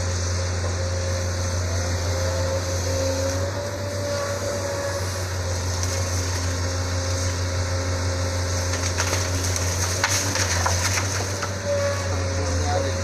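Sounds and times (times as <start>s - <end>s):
diesel engine droning: 0.0s - 13.0s
sharp knocks and cracks: 8.6s - 11.6s.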